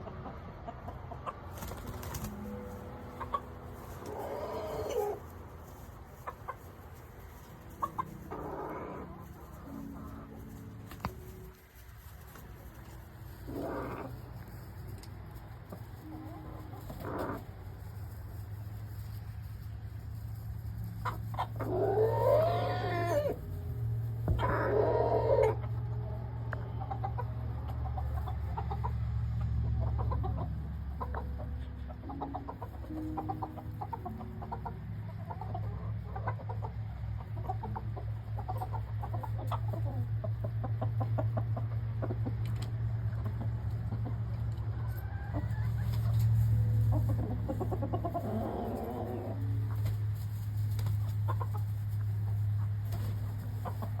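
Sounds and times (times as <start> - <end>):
drawn-out chicken calls: 0.0 - 23.6, 24.2 - 54.0
chickens clucking: 0.0 - 54.0.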